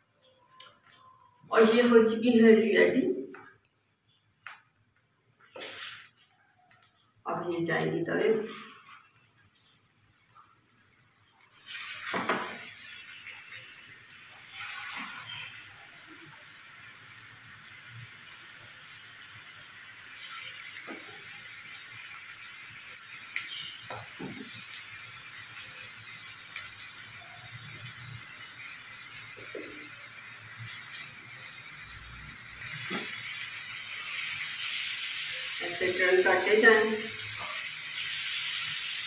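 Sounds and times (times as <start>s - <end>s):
patties sizzling on a griddle: 0.0s - 39.0s
patties tapping on pan: 8.5s - 13.6s, 20.6s - 21.3s, 23.4s - 24.7s, 29.3s - 29.9s.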